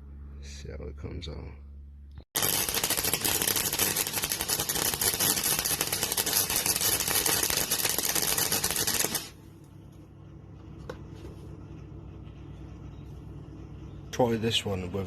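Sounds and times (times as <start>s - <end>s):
welder arc crackling: 2.4s - 9.4s.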